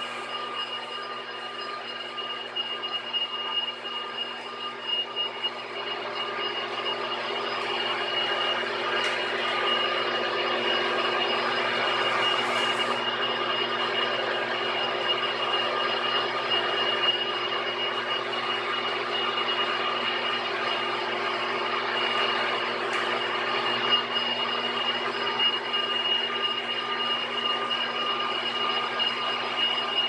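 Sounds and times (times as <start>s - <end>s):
machine tool whine: 0.0s - 30.0s.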